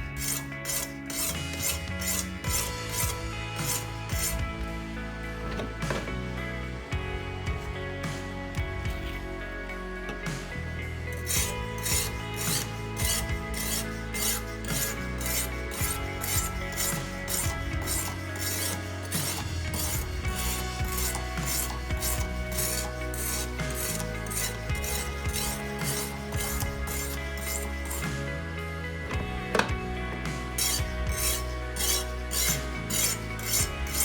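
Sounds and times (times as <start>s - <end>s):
background music: 0.0s - 34.0s
sharpening stone rasping on knife: 0.2s - 3.1s, 11.2s - 28.0s, 30.6s - 34.0s.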